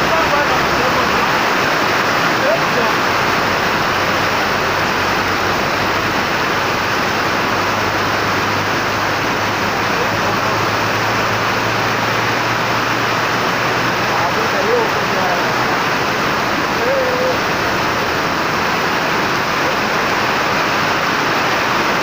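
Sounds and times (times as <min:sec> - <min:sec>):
heavy rain: 0:00.0 - 0:22.0
low engine hum: 0:00.0 - 0:22.0
rushing runoff water: 0:00.0 - 0:22.0.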